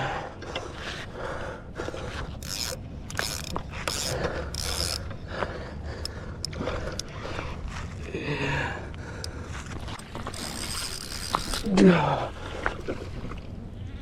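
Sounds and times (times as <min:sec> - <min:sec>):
fishing reel ratcheting and whirring: 0:02.3 - 0:07.2, 0:09.2 - 0:12.2.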